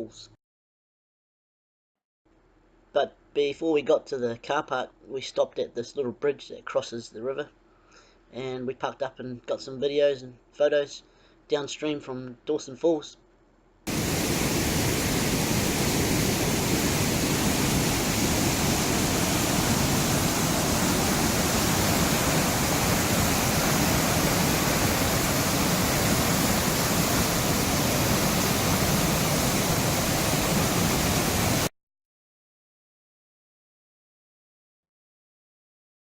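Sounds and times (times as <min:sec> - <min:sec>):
river rapids roaring: 0:13.9 - 0:31.7.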